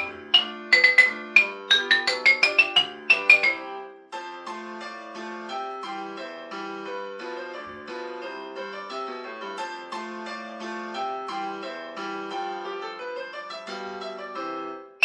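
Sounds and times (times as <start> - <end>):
piano-like keyboard melody: 0.0 - 3.8.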